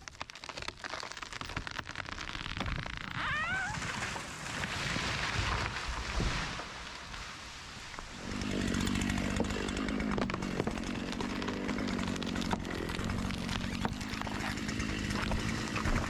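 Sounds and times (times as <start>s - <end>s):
chainsaw engine running: 8.1s - 16.0s.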